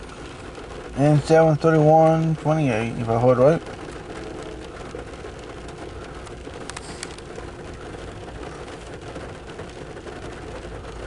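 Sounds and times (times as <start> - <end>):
rain on a car: 0.0 - 11.0
sharp clicks: 6.6 - 7.2.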